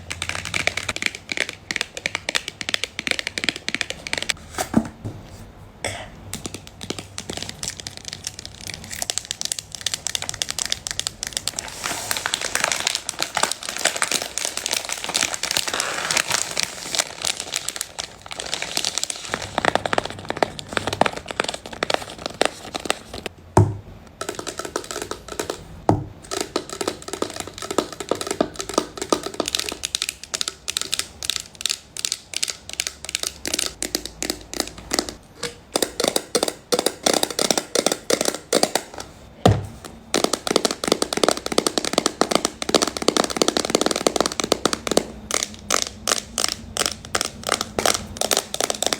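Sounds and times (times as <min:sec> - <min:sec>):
packaging crinkling: 0:06.8 - 0:23.3, 0:39.8 - 0:48.9
fingernails tapping hollow can: 0:24.2 - 0:31.0, 0:32.0 - 0:39.0, 0:40.1 - 0:48.9
fingernails tapping on packaging: 0:35.8 - 0:48.9.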